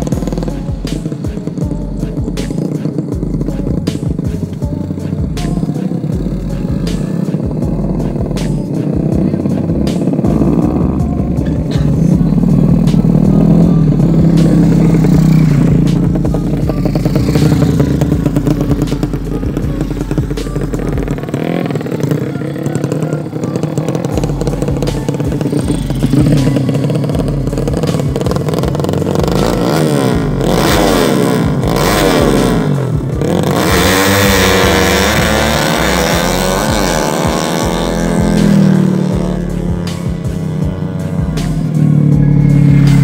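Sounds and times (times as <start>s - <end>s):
motorcycle engines revving: 0.0s - 43.0s.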